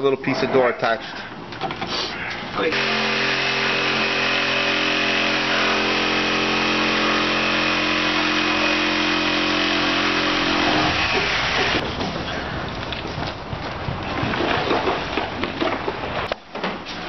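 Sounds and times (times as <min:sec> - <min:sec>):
power tool motor humming: 0:02.7 - 0:11.8.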